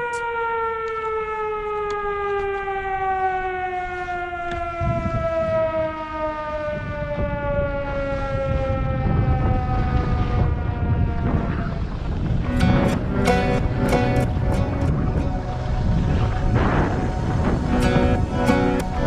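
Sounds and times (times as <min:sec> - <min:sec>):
falling siren-like tone: 0:00.0 - 0:19.0
low rumble: 0:12.4 - 0:19.0.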